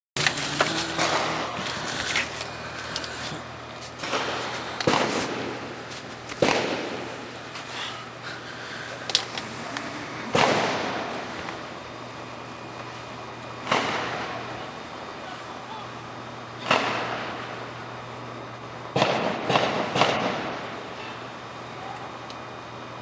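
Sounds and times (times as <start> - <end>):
sharp bangs with echo: 4.0 - 5.8, 6.4 - 7.3, 10.3 - 11.3, 13.6 - 14.4, 16.6 - 17.4, 19.0 - 20.7.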